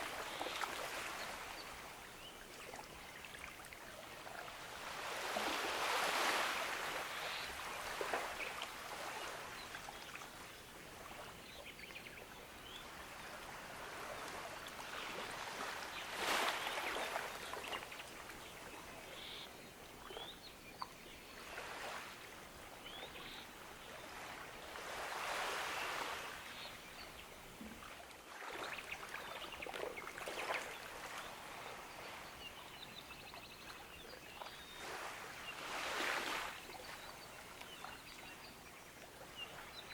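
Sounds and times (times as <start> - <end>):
ocean waves washing onto beach: 4.4 - 9.9.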